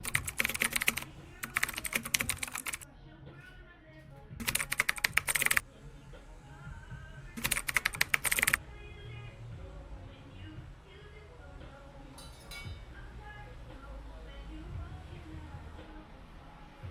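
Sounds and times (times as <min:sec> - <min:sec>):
keyboard typing clicks: 0:00.0 - 0:02.8, 0:04.4 - 0:05.6, 0:07.4 - 0:08.6.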